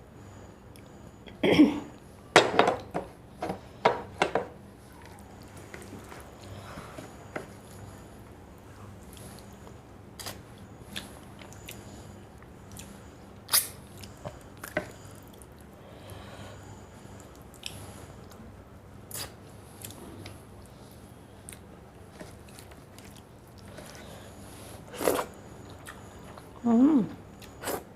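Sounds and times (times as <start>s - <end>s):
person chewing: 21.4s - 24.1s, 24.9s - 26.6s.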